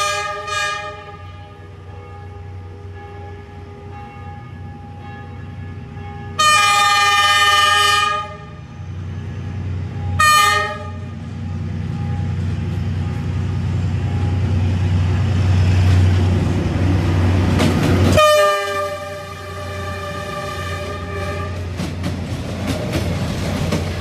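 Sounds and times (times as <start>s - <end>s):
locomotive horn blasts: 0.0s - 8.6s, 9.2s - 11.2s, 13.0s - 13.4s, 18.1s - 21.7s
locomotive engine rumble: 0.0s - 24.0s.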